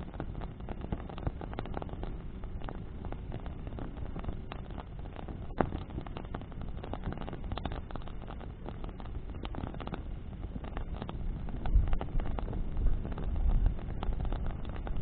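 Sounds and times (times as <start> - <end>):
bonfire crackling and popping: 0.0 - 15.0
flames rushing in wind: 0.0 - 15.0.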